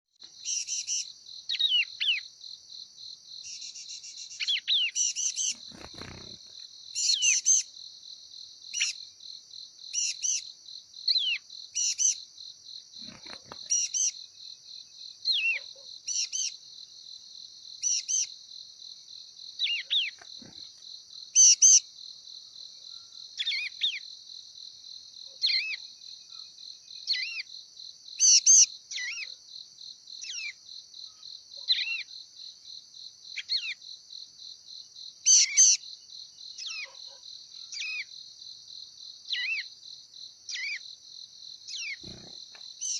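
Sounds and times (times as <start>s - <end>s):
crickets trilling: 0.3s - 42.9s
bird chirping calls: 3.5s - 7.7s, 13.0s - 14.2s, 19.6s - 20.6s, 41.7s - 42.9s.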